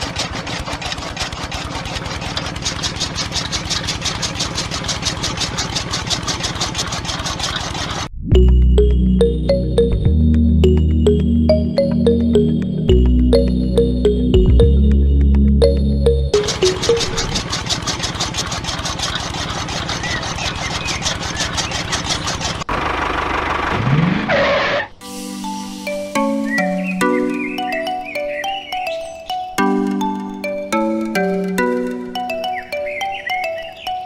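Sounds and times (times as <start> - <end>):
small electric motor clattering: 0.0 - 8.1, 16.4 - 22.7
background music: 8.3 - 17.3, 25.0 - 34.0.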